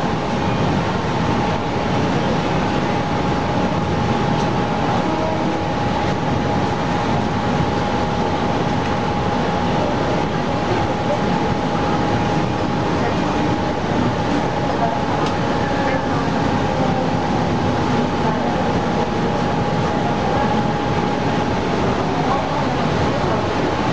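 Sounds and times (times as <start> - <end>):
high hum: 0.0 - 23.9
train rumbling: 0.0 - 23.9.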